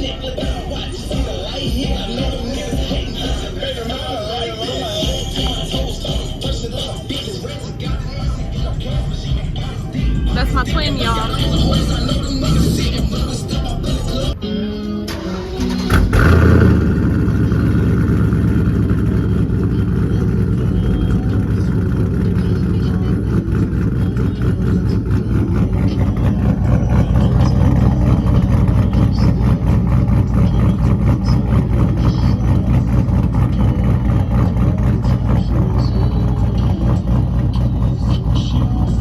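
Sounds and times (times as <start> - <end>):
car engine idling loudly: 0.0 - 14.4, 15.4 - 39.0.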